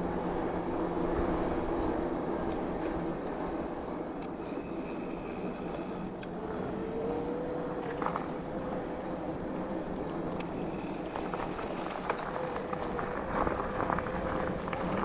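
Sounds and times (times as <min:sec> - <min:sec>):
faint steady whine: 0:00.0 - 0:15.0
bicycle tyres rolling: 0:01.9 - 0:15.0
bike clicks and rattles: 0:09.9 - 0:15.0.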